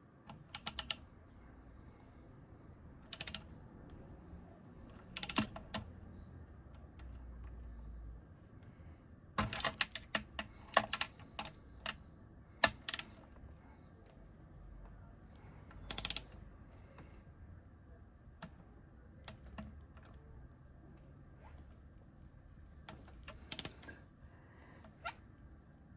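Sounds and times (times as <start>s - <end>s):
metallic clicks of tools and parts: 0.3s - 1.0s, 3.1s - 3.5s, 5.0s - 5.6s, 9.4s - 12.0s, 12.6s - 13.2s, 15.7s - 16.4s, 23.3s - 24.0s.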